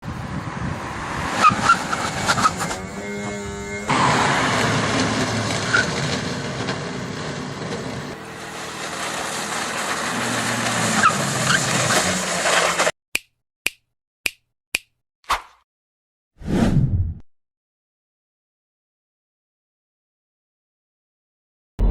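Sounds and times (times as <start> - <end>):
dense car noise: 0.0 - 12.9.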